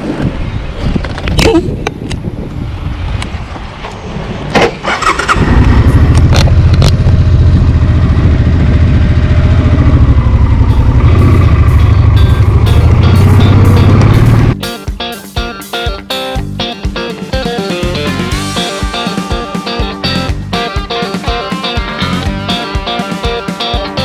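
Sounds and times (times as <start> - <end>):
motorcycle engine idling: 5.5 - 14.6.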